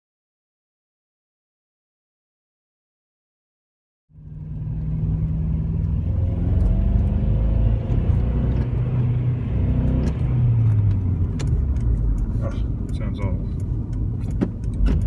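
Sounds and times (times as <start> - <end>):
car engine idling rough: 10.6 - 15.0.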